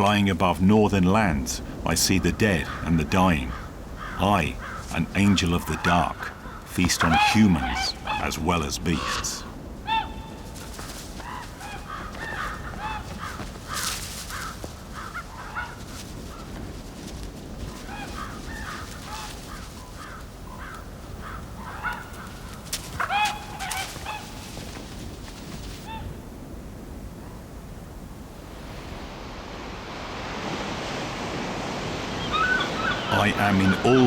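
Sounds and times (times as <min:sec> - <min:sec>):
steady background hiss: 0:00.0 - 0:34.0
crows cawing: 0:02.2 - 0:26.1, 0:32.2 - 0:34.0.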